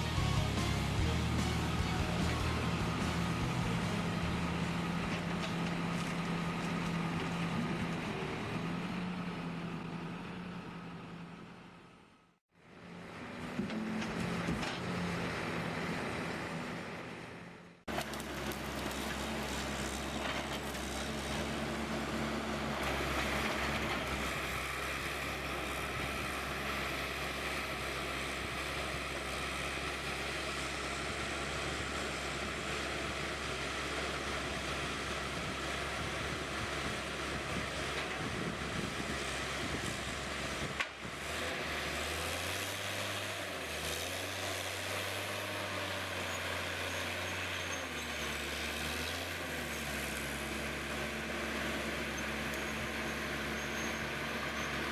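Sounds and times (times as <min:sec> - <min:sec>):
low engine drone: 0:00.0 - 0:41.1
heavy machinery engine running: 0:00.0 - 0:54.9.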